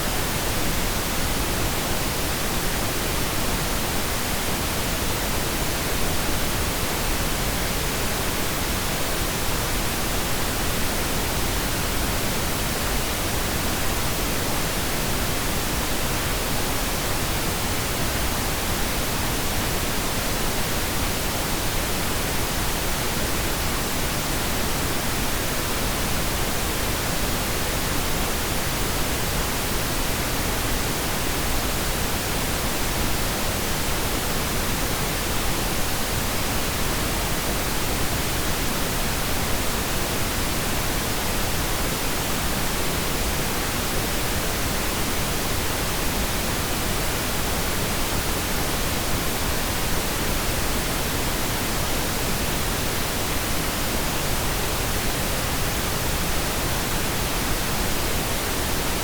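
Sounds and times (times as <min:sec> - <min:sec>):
steady pink noise hiss: 0:00.0 - 0:59.0.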